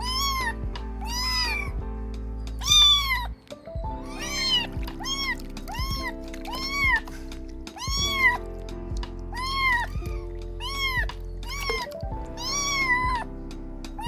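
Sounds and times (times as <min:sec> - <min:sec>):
background music: 0:00.0 - 0:14.0
kittens meowing: 0:00.0 - 0:14.0.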